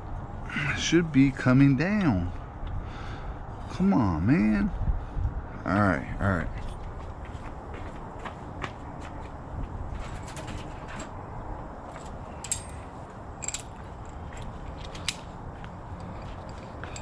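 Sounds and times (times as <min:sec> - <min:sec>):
low steady background noise: 0:00.0 - 0:17.0
metal tools clinking: 0:10.0 - 0:11.1, 0:11.9 - 0:15.4, 0:16.0 - 0:17.0.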